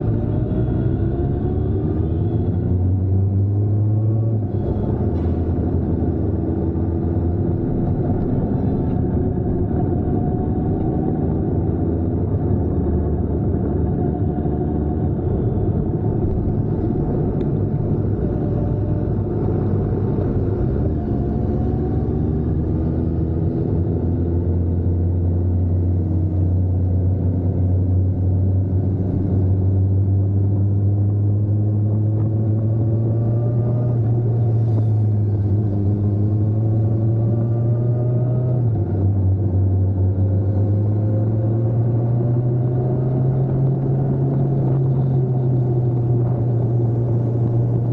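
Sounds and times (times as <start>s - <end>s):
vehicle engine humming: 0.0s - 47.9s.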